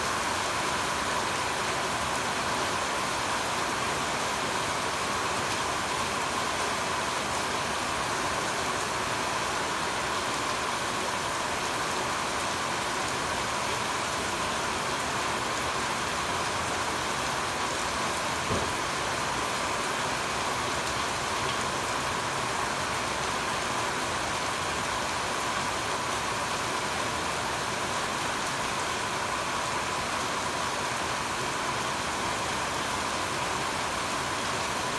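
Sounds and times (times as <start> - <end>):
steady rain falling: 0.0 - 34.9
brief knock: 18.5 - 18.7.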